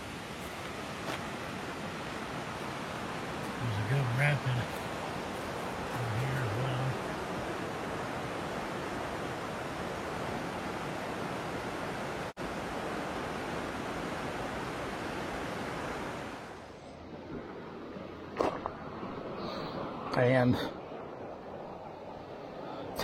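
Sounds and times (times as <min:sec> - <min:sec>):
river rapids rushing: 0:00.0 - 0:16.5.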